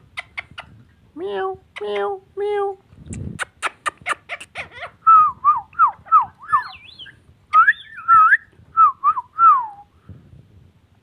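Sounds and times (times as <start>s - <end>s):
parakeet whistling: 4.8s - 8.4s.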